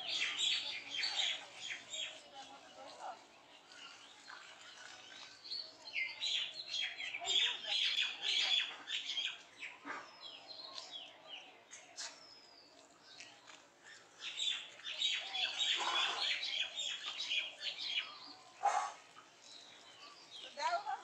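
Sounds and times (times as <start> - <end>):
birds chirping and twittering: 0.0 - 21.0.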